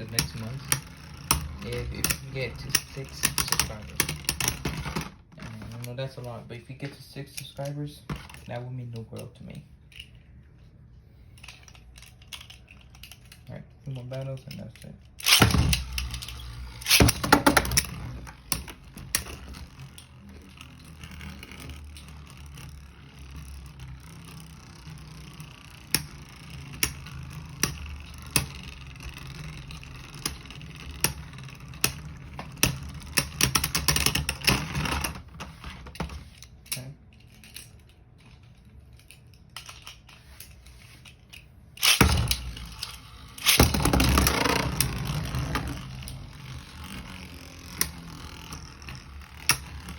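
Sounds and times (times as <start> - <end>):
spinning tops whirring: 0.0 - 5.1, 15.2 - 36.0, 41.8 - 49.9
spinning tops clashing: 41.8 - 49.9.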